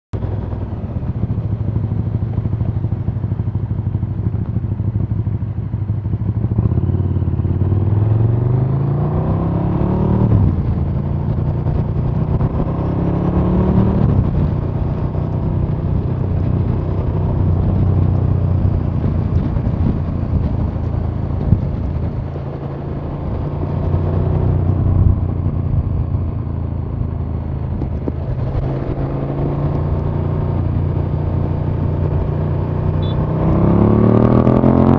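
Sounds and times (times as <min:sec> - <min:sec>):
motorcycle engine revving: 0:00.2 - 0:34.9.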